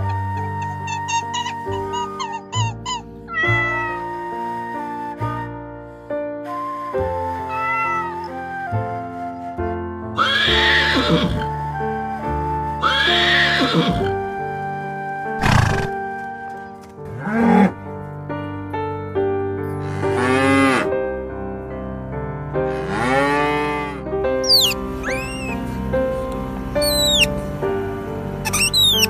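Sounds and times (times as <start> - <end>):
background music: 0.0 - 29.0
horse whinny: 10.2 - 11.5, 12.8 - 14.1, 15.4 - 16.0, 24.4 - 25.6, 26.8 - 27.3
cattle mooing: 22.7 - 25.5
otter chirping: 24.4 - 25.6, 26.8 - 27.3, 28.4 - 29.0.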